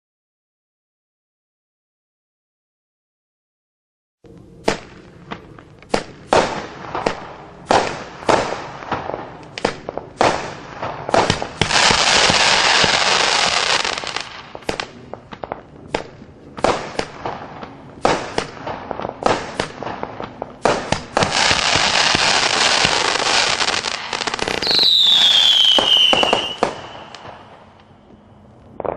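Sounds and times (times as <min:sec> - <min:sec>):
firework crackling: 0:04.3 - 0:28.9
firework shots and bursts: 0:04.6 - 0:27.8
falling firework whistle: 0:21.3 - 0:27.6.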